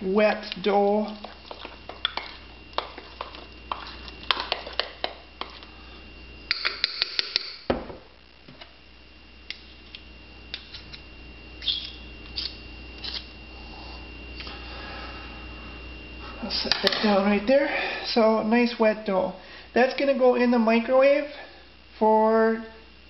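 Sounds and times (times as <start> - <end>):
spoon stirring thick batter: 0.4 - 5.9.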